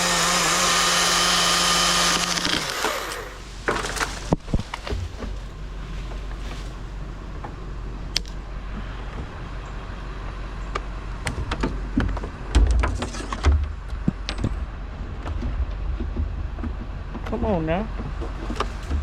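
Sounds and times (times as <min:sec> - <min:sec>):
low engine drone: 0:02.2 - 0:19.0
sharp clicks and knocks: 0:10.7 - 0:19.0.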